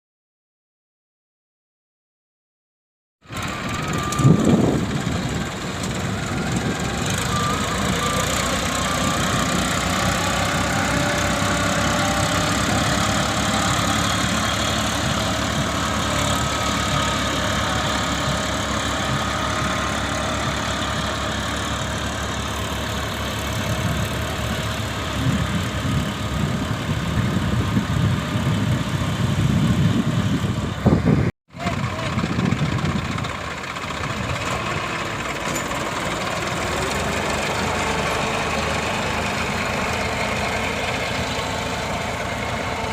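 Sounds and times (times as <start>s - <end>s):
engine running steadily: 3.2s - 42.9s
people's voices: 31.6s - 34.8s.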